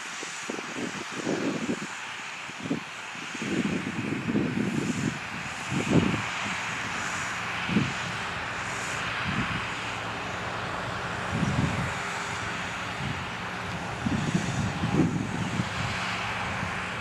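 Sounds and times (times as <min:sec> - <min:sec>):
wind buffeting the microphone: 0:00.0 - 0:17.0
tractor diesel engine running: 0:04.4 - 0:17.0.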